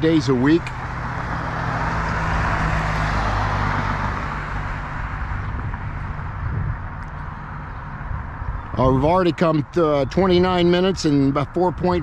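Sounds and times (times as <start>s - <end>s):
car passing: 0.0s - 12.0s
steady low rumble: 4.6s - 12.0s.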